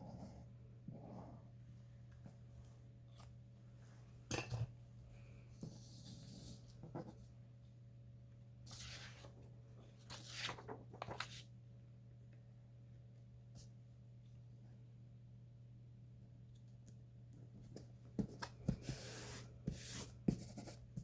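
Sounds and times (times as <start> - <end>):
low steady hum: 0.0 - 21.0
paper rustling: 10.0 - 11.5.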